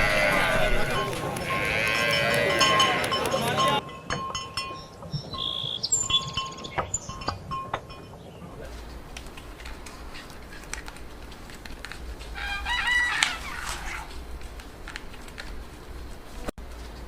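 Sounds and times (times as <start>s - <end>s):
faint clicks: 0.0s - 3.8s
rooster crowing: 0.0s - 3.8s, 12.4s - 14.1s.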